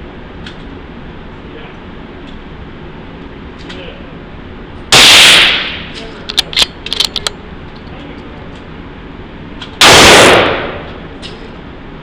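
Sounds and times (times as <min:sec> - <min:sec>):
rifle shot: 0:04.9 - 0:05.9, 0:09.8 - 0:10.9
sharp metallic clicks: 0:06.3 - 0:07.4.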